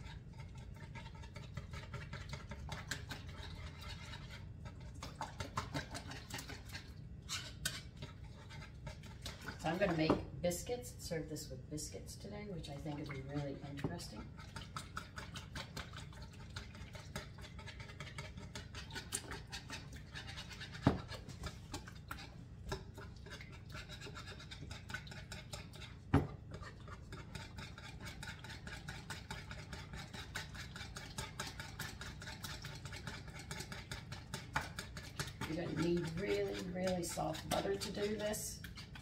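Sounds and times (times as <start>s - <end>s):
hand whisk scraping in bowl: 0.0s - 10.8s, 12.2s - 39.0s
whisk knocking against bowl: 5.0s - 6.7s, 22.6s - 39.0s.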